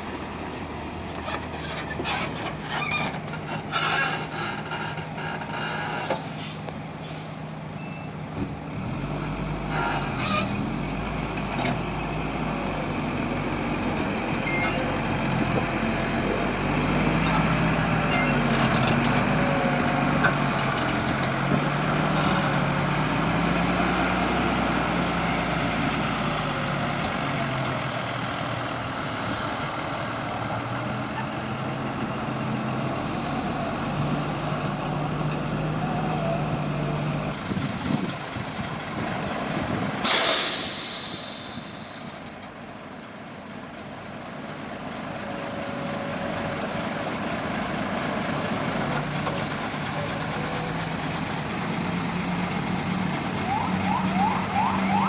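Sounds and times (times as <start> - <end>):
diesel truck engine running: 0.0 - 55.0
air brakes hissing: 5.7 - 7.4, 40.0 - 42.3.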